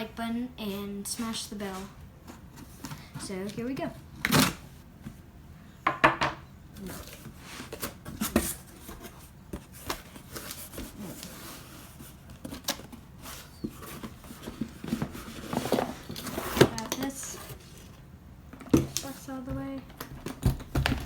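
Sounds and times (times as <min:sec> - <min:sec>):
cardboard box being opened: 0:06.8 - 0:18.0
cardboard rustling: 0:06.8 - 0:21.0.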